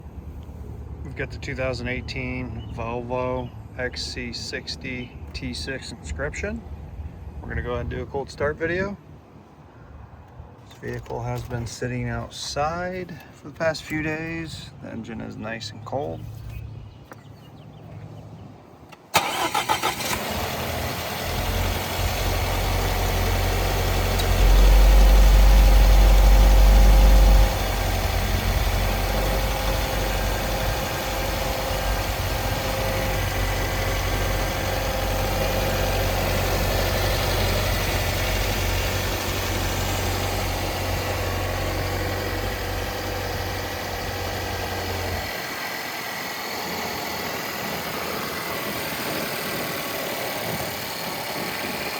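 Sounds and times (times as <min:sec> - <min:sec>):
car engine starting and idling: 0:18.8 - 0:51.9.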